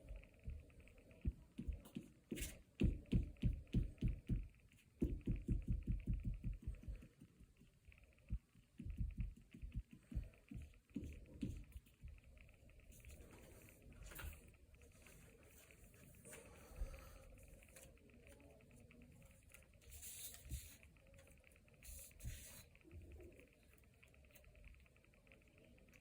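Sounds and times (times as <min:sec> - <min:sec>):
soft low thumps: 0:00.0 - 0:02.2, 0:02.8 - 0:12.5.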